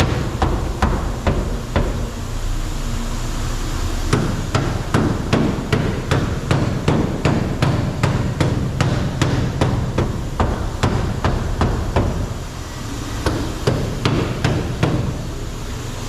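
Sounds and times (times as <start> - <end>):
hammer blows on sheet metal: 4.1 - 12.3.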